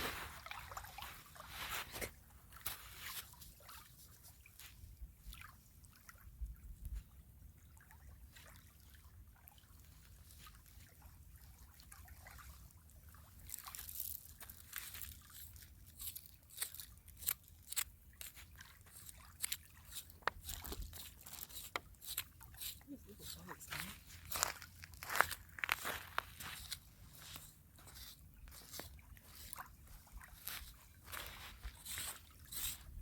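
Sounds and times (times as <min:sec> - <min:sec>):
river water lapping and trickling: 0:00.0 - 0:33.0.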